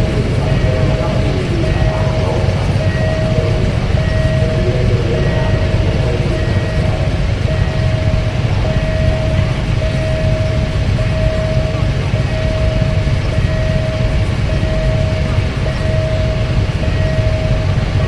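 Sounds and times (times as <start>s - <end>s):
crossing warning tone: 0.0s - 18.0s.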